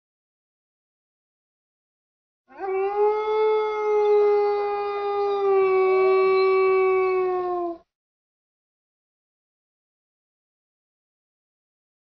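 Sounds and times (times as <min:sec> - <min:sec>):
wolf howling: 0:02.5 - 0:07.8.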